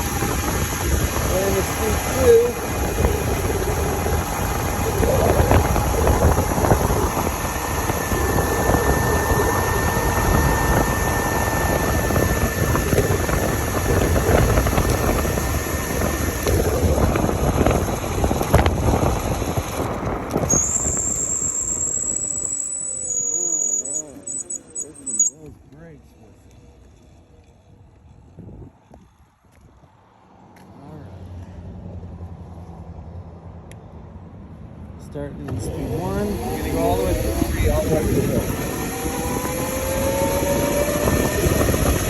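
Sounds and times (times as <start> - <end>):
low rushing rumble: 0.0 - 23.0
electric motorcycle motor whine: 0.0 - 25.5, 35.5 - 42.0.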